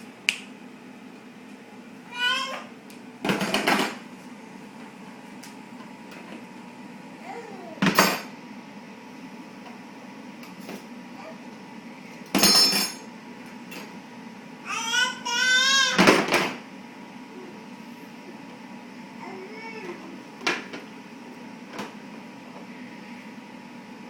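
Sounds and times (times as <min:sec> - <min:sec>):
dishes and cutlery rattling: 0:12.4 - 0:13.1.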